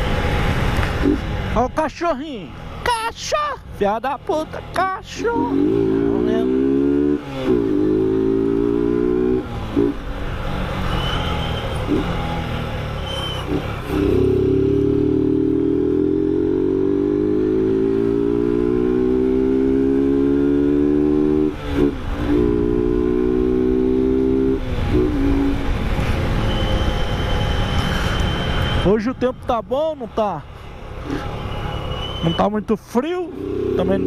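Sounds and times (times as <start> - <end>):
motorcycle engine accelerating: 4.3 - 26.9, 33.3 - 34.0.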